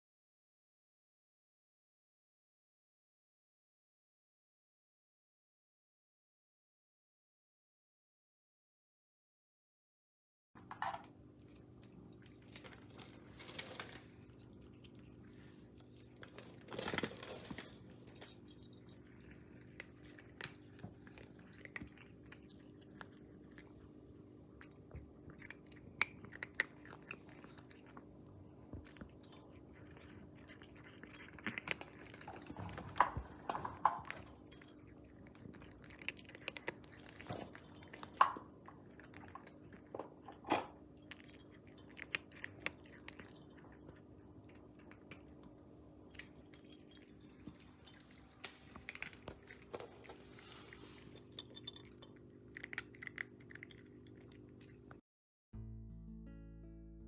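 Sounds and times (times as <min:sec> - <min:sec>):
chewing and crunching: 0:11.4 - 0:55.0.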